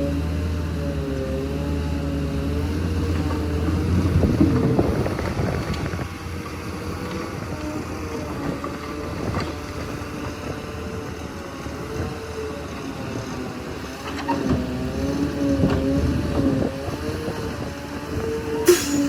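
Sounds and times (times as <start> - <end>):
bulldozer diesel engine working: 0.0 - 19.0
metallic clanks: 18.7 - 19.0.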